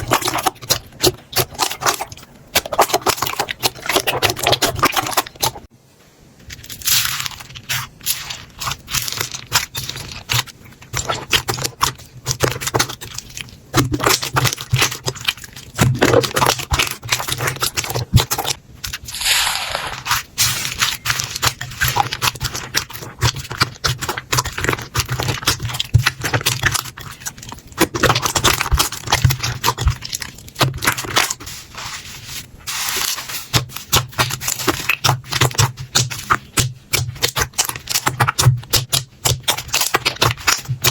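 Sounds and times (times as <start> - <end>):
slime squeezed by hand crackling: 19.1 - 21.6.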